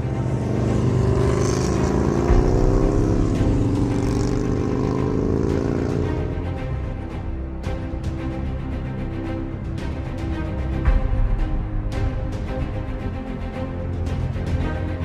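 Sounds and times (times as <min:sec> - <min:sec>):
vehicle engine pitch gliding: 0:00.0 - 0:07.0
background music: 0:00.0 - 0:15.0.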